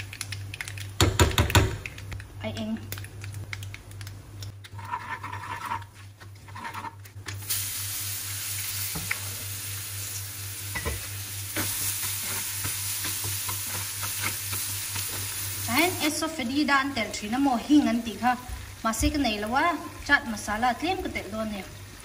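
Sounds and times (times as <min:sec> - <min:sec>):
spoon stirring and scraping pan: 0:04.6 - 0:07.1, 0:10.8 - 0:15.4
loud steady sizzle: 0:07.3 - 0:22.0
spices sizzling in oil: 0:07.4 - 0:22.0.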